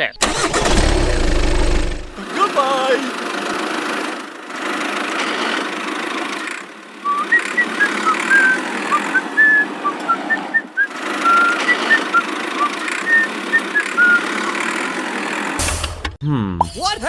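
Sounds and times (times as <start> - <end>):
engine-like running noise: 0.0 - 2.3.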